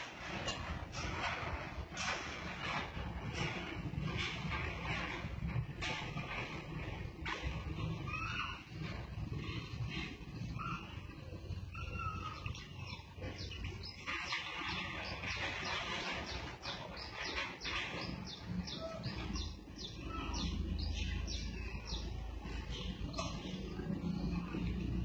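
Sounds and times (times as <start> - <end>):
steady low rumble: 8.8 - 25.0
small birds chirping: 10.4 - 24.6.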